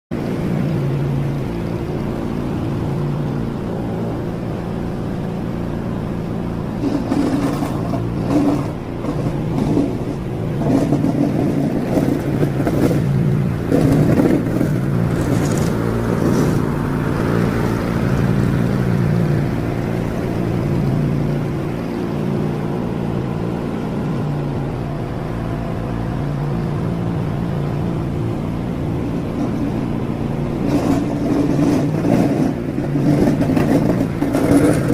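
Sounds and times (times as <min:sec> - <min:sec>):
sharp clicks and rattles: 0:06.8 - 0:18.7, 0:30.6 - 0:34.9.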